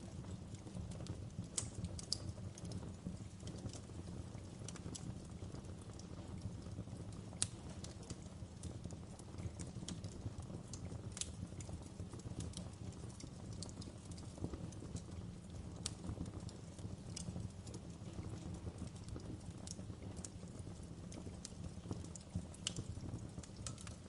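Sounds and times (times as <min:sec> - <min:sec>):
wood fire crackling: 0:00.0 - 0:24.0
sharp pops and snaps: 0:00.6 - 0:03.9, 0:07.3 - 0:08.2, 0:09.1 - 0:24.0.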